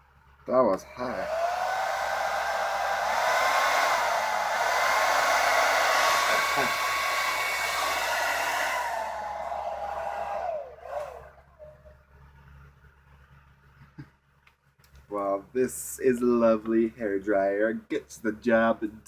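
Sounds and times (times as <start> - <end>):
hair dryer running: 0.8 - 11.4.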